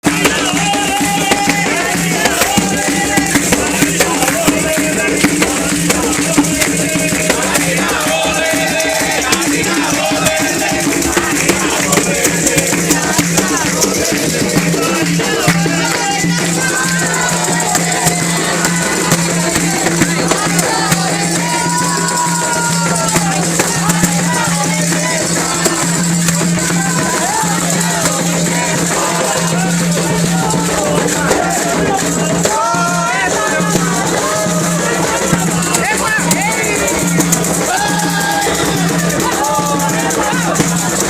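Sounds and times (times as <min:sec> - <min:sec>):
percussion: 0:00.0 - 0:41.0
rattles shaken: 0:00.0 - 0:41.0
voices singing: 0:00.0 - 0:41.0.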